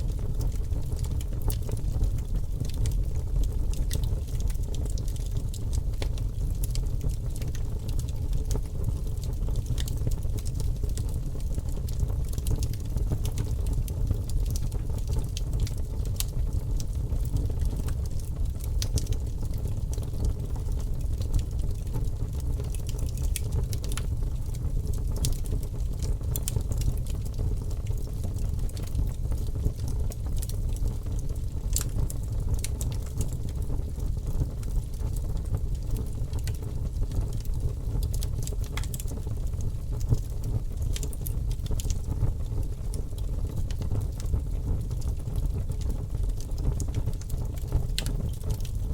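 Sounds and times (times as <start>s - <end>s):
fire crackling in fireplace: 0.0s - 48.9s.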